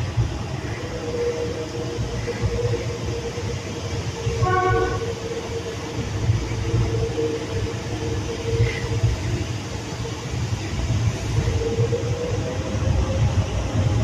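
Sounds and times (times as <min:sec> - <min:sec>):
train rumbling past: 0:00.0 - 0:14.0
train horn note: 0:04.3 - 0:05.2.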